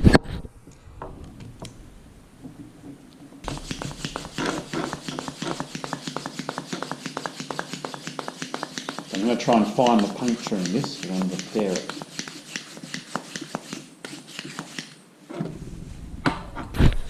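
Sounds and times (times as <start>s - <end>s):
hand pump strokes: 3.4s - 15.0s.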